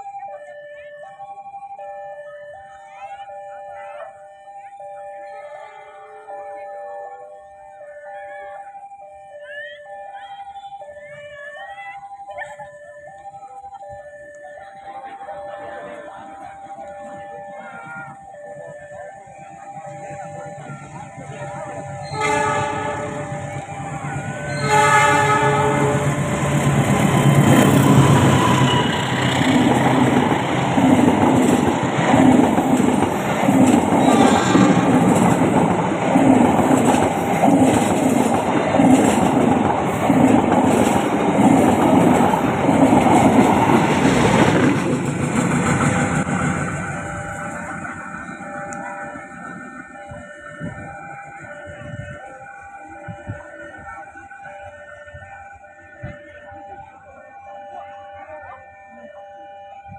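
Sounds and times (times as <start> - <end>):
passing train running noise: 0.0 - 59.9
steady high tones: 0.0 - 59.9
locomotive horn blasts: 21.9 - 30.7, 33.9 - 35.3.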